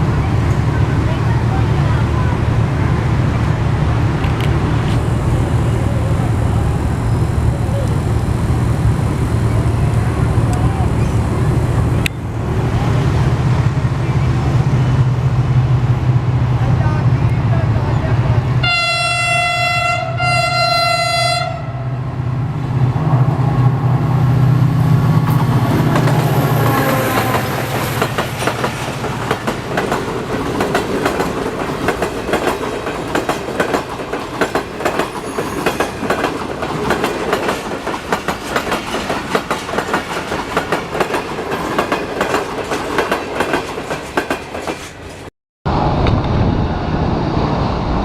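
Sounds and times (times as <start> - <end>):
locomotive engine rumble: 0.0 - 20.2
locomotive horn: 18.6 - 22.0, 26.3 - 27.8
train wheels clattering on rails: 25.2 - 45.3.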